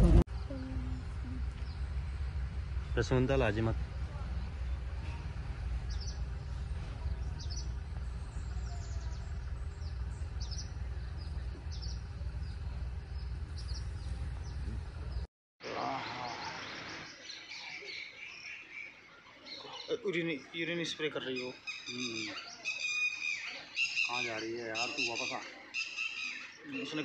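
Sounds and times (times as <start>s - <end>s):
low steady rumble: 0.0s - 15.3s
birds chirping: 0.0s - 27.0s.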